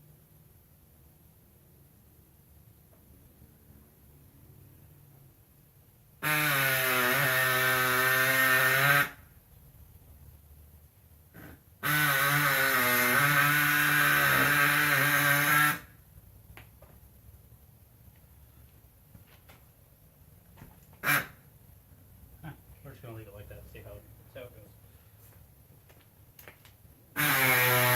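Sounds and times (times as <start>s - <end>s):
air saw buzzing whine: 6.2s - 9.2s, 11.8s - 15.9s, 27.2s - 27.9s.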